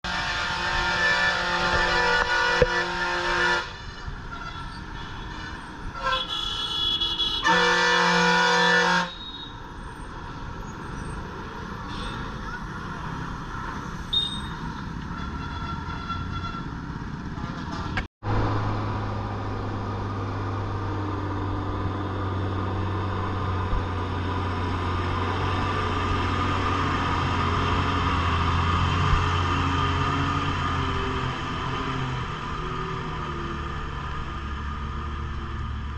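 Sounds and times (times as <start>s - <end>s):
lorry diesel engine drone: 0.0s - 4.3s, 10.3s - 35.9s
vehicle horn honking: 0.0s - 9.5s, 14.1s - 16.8s.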